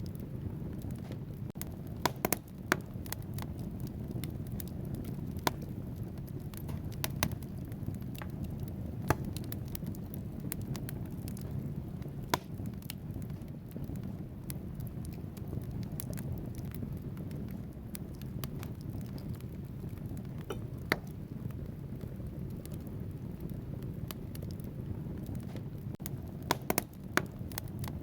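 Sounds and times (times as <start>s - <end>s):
burning logs crackling and popping: 0.0s - 28.0s
low roar of flames: 0.0s - 28.0s.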